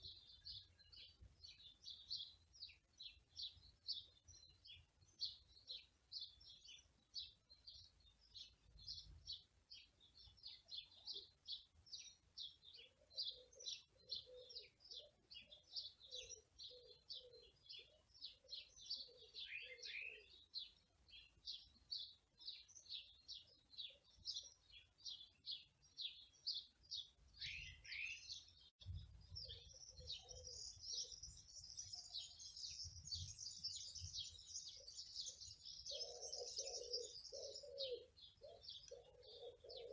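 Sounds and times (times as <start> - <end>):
small songbirds chirping: 0.0 - 39.9
lower repeated bird call: 12.0 - 20.4, 29.4 - 39.9.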